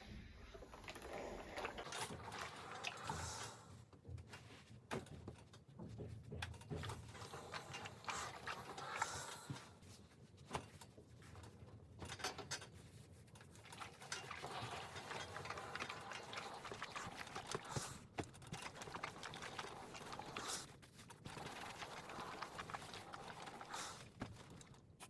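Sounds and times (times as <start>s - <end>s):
household items clicking and knocking: 13.4s - 25.0s.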